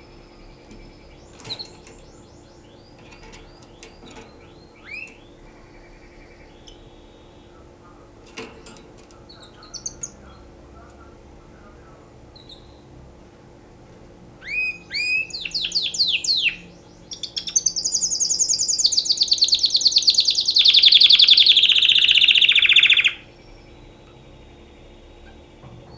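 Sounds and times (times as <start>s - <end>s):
canary singing in trills: 0.0s - 13.0s, 14.4s - 25.9s.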